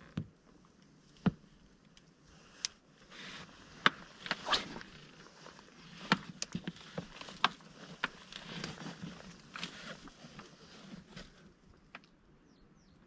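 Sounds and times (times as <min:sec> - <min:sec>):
rustling: 0:02.4 - 0:12.0.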